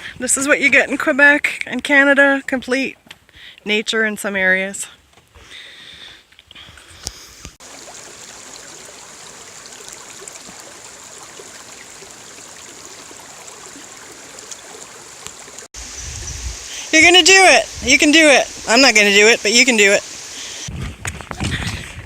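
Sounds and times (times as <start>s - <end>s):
stream flowing: 7.0s - 20.7s.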